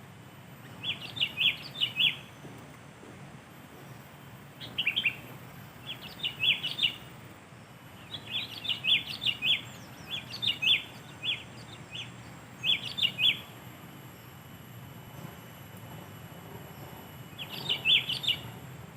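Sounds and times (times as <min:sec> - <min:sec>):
bulbul calling: 0:04.6 - 0:07.0, 0:08.1 - 0:13.5, 0:17.4 - 0:18.6.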